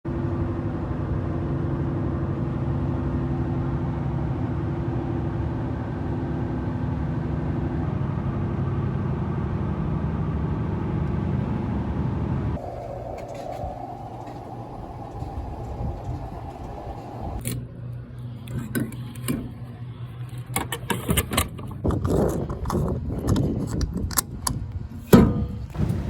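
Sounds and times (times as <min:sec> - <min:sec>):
vehicle engine running: 0:00.3 - 0:17.4.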